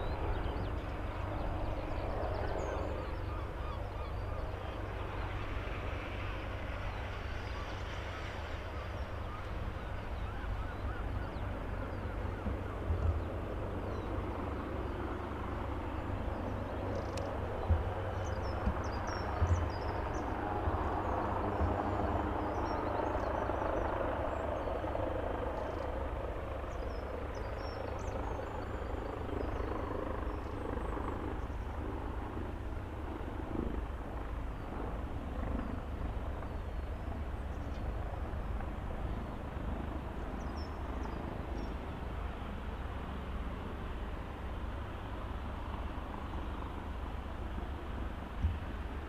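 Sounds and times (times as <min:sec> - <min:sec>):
helicopter rotor and engine: 0:00.0 - 0:49.0.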